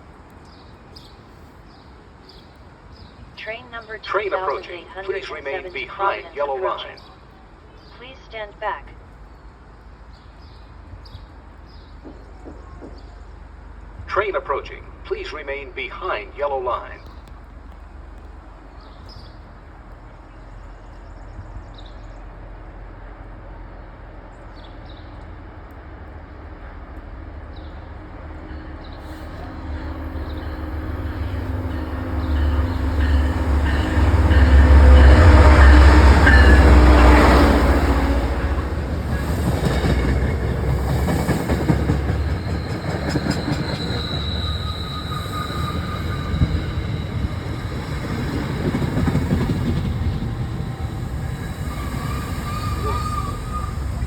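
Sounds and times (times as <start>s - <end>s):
diesel locomotive engine rumble: 9.0s - 54.0s
train wheel clatter: 31.2s - 54.0s
high wheel squeal: 42.1s - 49.0s, 50.0s - 54.0s.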